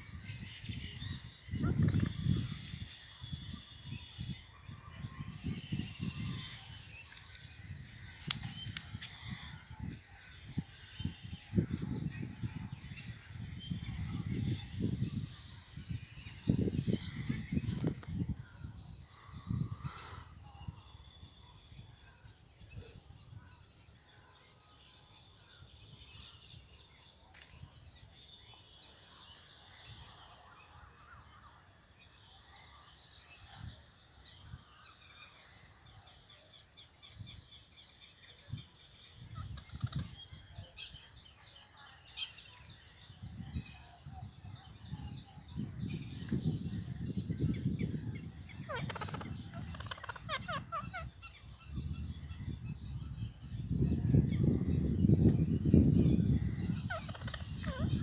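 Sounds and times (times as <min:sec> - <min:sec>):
parakeets calling and chattering: 0:45.0 - 0:52.6, 0:56.2 - 0:58.0.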